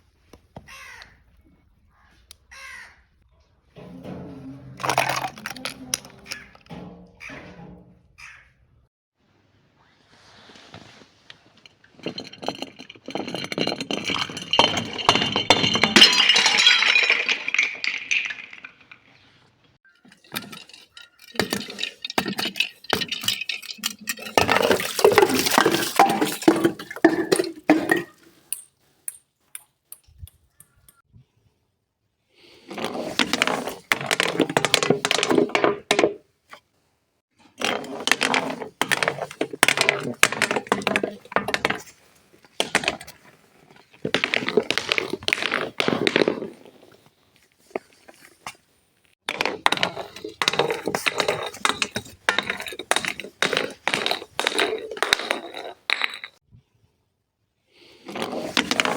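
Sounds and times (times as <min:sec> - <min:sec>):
glass crunching and breaking: 0:12.0 - 0:19.2, 0:20.1 - 0:28.2.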